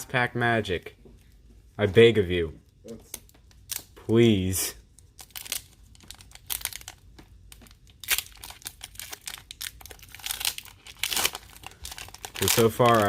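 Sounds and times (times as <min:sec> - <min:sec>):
foil wrapper crinkling and tearing: 0:05.0 - 0:13.0.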